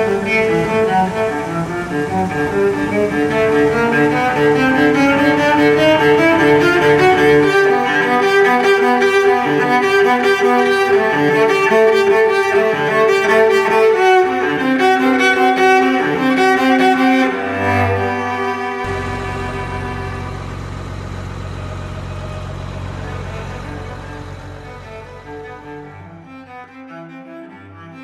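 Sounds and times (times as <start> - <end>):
instrumental background music: 0.0 - 20.4.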